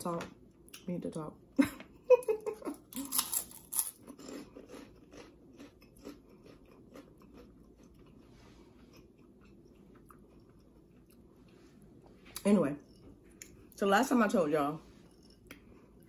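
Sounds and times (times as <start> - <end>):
crunchy chewing of snack: 2.9 - 12.2.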